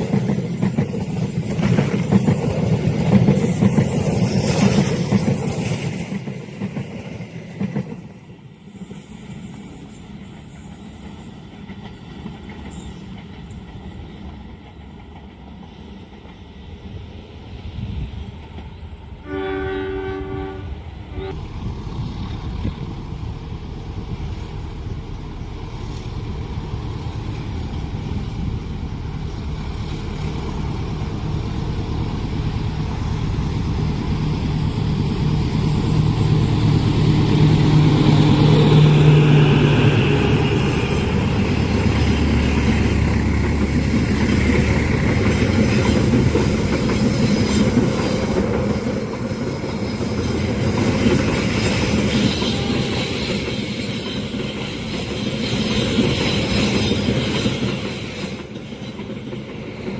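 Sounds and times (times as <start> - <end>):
train cars rumbling with wheel clatter: 0.0 - 59.9
locomotive engine hum: 18.4 - 54.9.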